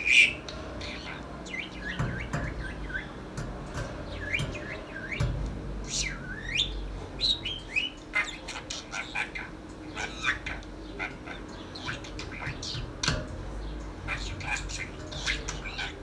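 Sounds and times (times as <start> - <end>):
parrot chattering and whistling: 5.8 - 13.0, 14.1 - 16.0.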